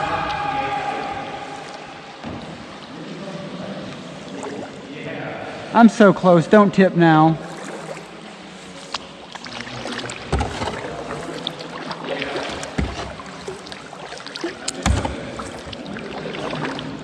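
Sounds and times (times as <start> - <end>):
paddle splashing and dripping: 0.0 - 4.9, 7.3 - 17.0
dull knocks against boat: 10.3 - 11.4, 12.4 - 13.7, 14.7 - 15.8.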